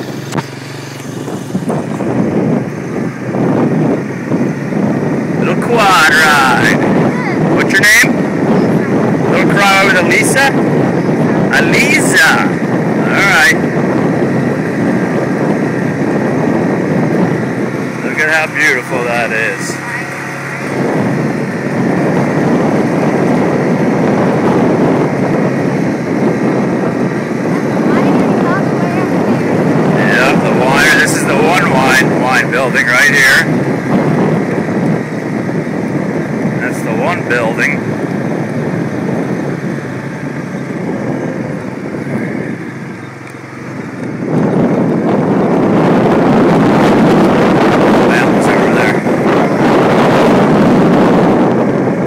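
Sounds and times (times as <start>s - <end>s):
quad engine running: 0.0s - 52.0s
road noise: 0.0s - 52.0s
wind rumbling on microphone: 0.0s - 52.0s.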